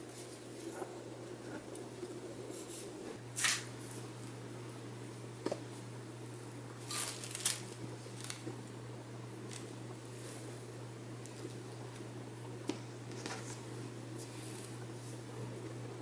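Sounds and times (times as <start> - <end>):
steady low hum: 0.0 - 16.0
rustling handling noises: 6.8 - 8.6.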